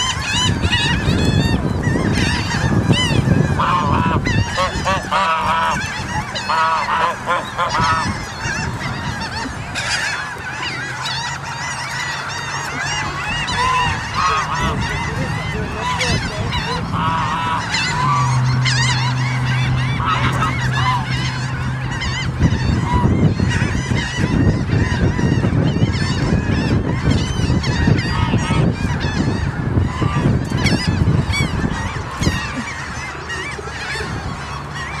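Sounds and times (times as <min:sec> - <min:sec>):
low hum: 0:00.0 - 0:24.7
gulls and ducks calling: 0:00.0 - 0:35.0
low rumbling noise: 0:00.0 - 0:35.0.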